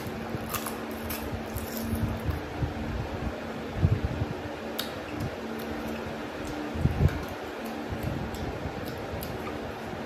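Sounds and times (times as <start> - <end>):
crisp shell crunching: 0.0 - 2.4
steady hum: 0.0 - 10.0.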